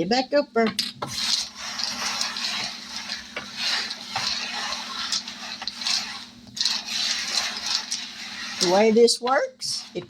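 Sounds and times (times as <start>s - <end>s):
dominoes clattering on table: 1.0s - 9.0s.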